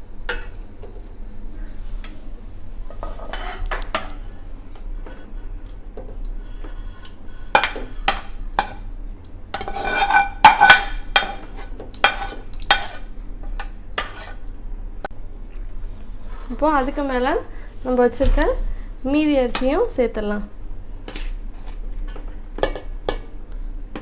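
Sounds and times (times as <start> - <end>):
metal spoon scraping a pot: 3.0 - 4.2, 9.6 - 13.1, 14.0 - 14.4.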